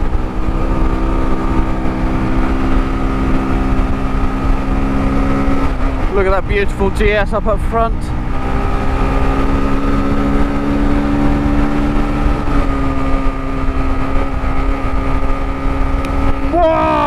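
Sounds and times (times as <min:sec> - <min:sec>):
wind rumble on microphone: 0:00.0 - 0:07.2
motorcycle engine at high revs: 0:00.0 - 0:17.0.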